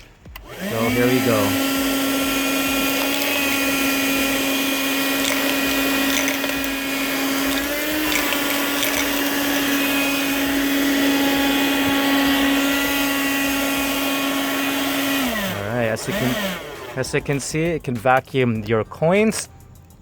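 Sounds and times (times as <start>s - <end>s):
car vacuum cleaner whine: 0.0s - 17.4s
coins ticking: 1.0s - 11.6s.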